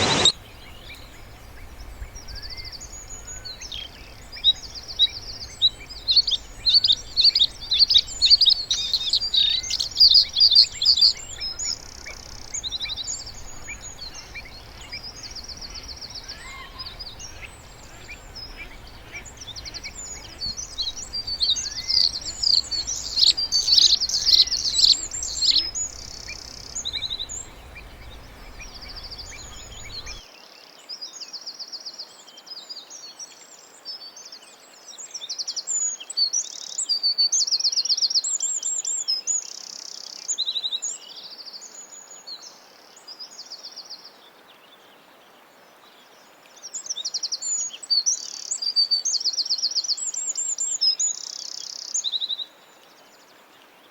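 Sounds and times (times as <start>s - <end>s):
low background hum: 0.0s - 30.2s
songbirds chirping and trilling: 0.0s - 30.4s.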